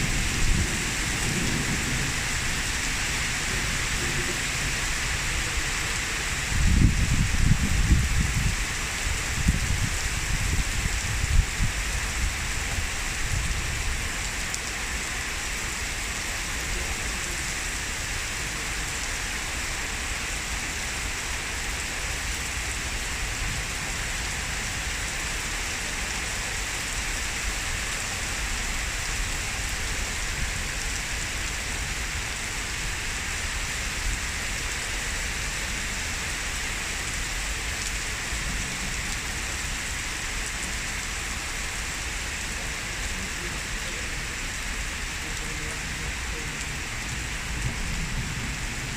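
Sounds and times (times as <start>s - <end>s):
low thunder rumble: 0.0s - 4.8s
heavy rain falling: 0.0s - 48.9s.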